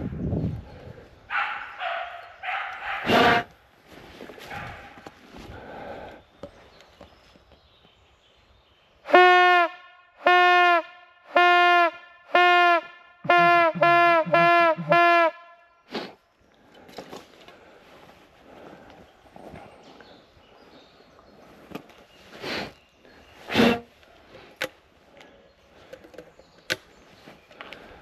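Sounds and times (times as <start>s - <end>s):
hunting horn blasts: 9.1s - 15.8s.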